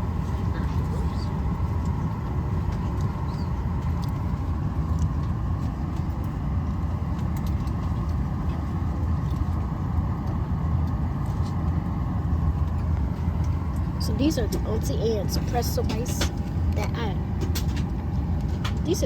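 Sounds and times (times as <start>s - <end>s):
jet engine cabin drone: 0.0s - 19.0s.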